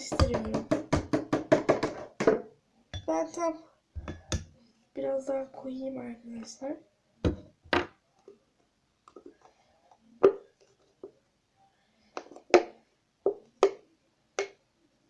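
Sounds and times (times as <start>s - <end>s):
sharp knocks of hard objects: 0.0s - 2.5s.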